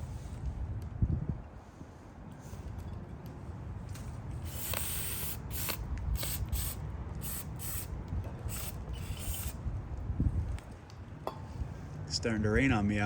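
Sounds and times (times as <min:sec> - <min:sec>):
aerosol spray hissing bursts: 0:04.4 - 0:07.9, 0:08.5 - 0:09.6.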